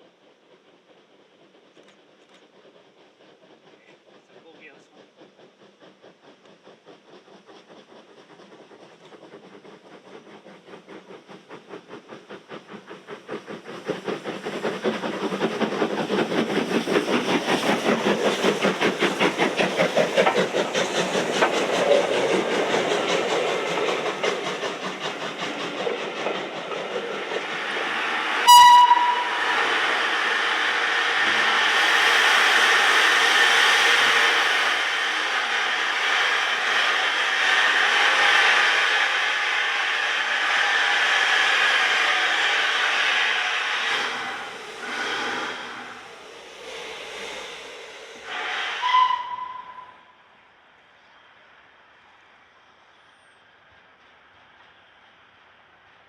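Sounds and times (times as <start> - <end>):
steam hissing: 0.0 - 56.0
steam locomotive exhaust beats: 0.0 - 56.0
steam whistle: 28.4 - 29.8, 48.3 - 50.1.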